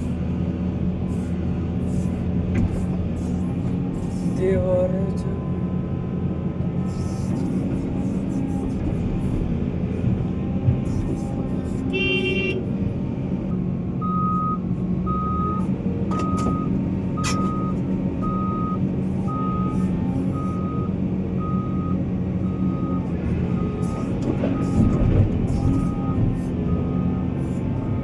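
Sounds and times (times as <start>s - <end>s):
heavy diesel machine running: 0.0s - 28.0s
reversing alarm beeping: 14.0s - 27.3s.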